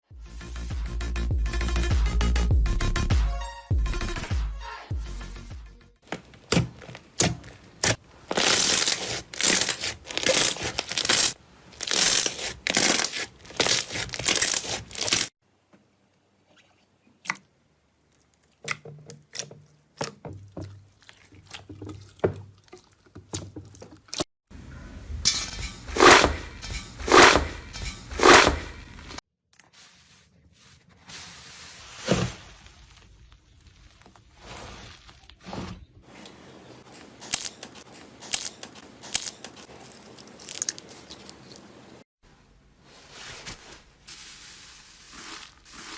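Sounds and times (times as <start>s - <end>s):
slime squishing: 6.3s - 15.3s
slime crackling: 6.4s - 15.3s.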